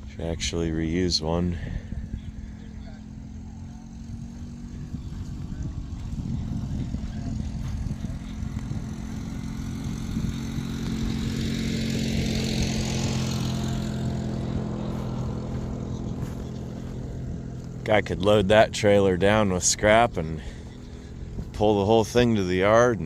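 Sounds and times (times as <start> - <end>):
vehicle engine passing by: 0.0 - 23.0.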